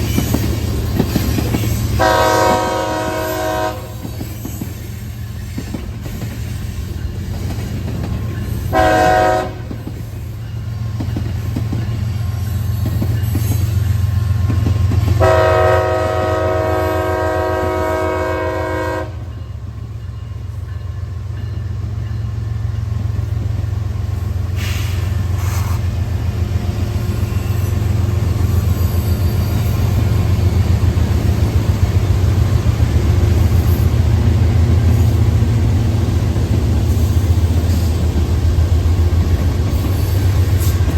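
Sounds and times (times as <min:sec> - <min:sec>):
freight train wheels clattering: 0:00.0 - 0:16.5, 0:19.3 - 0:40.9
train horn blasts: 0:02.0 - 0:04.2, 0:08.7 - 0:09.8, 0:15.1 - 0:19.4.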